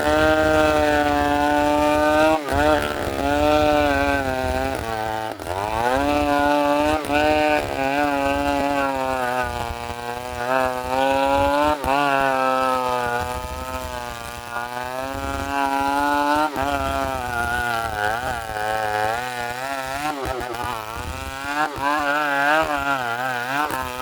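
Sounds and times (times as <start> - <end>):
chainsaw cutting timber: 0.0 - 24.0.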